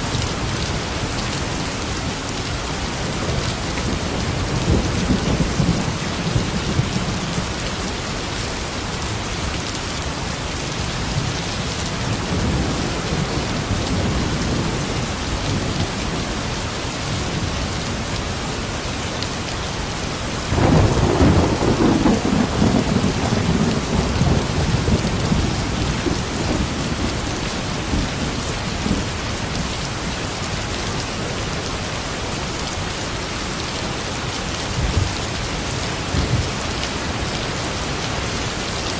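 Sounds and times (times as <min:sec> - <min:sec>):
rain pouring: 0:00.0 - 0:38.9
thunder rumbling: 0:20.5 - 0:29.2.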